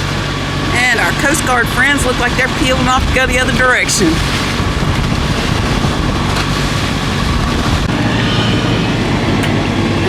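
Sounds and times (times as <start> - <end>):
boat motor running: 0.0 - 10.0
wind buffeting microphone: 0.8 - 10.0.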